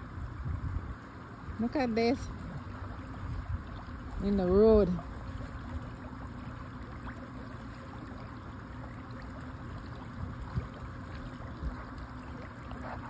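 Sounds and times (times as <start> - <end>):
small water splashes: 1.1 - 13.0.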